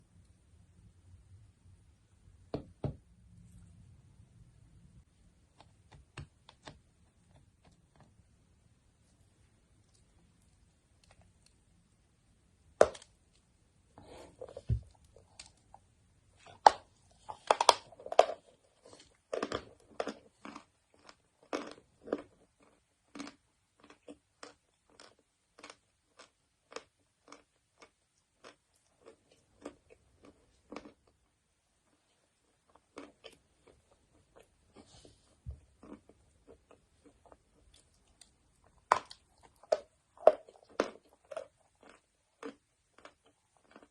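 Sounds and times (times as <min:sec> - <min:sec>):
chalk being bitten and chewed: 0:39.0 - 0:43.9.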